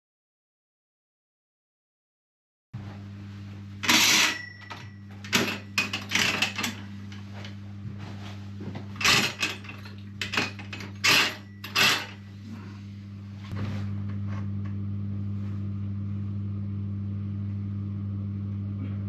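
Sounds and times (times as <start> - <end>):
steady electrical hum: 2.8 - 19.0
objects knocking and clattering: 3.8 - 6.9, 8.7 - 12.2.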